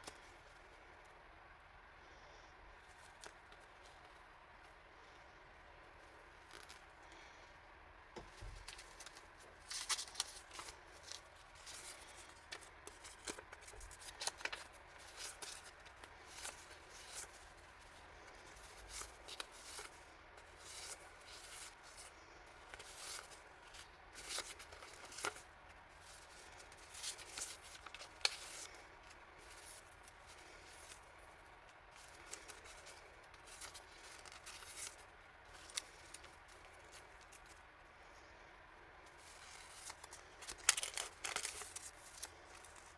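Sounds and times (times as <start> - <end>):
plastic packaging crinkling: 8.3 - 37.6, 39.1 - 42.9.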